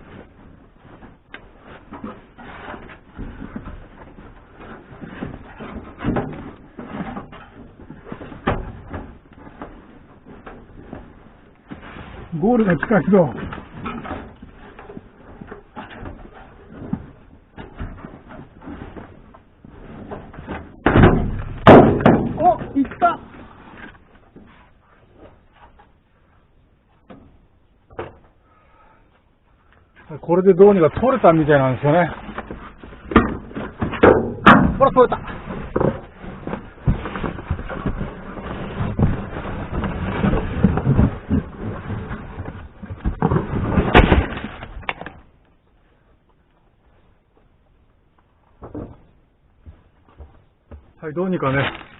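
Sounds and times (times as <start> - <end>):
loud rough thump: 20.0 - 23.4, 32.4 - 44.9.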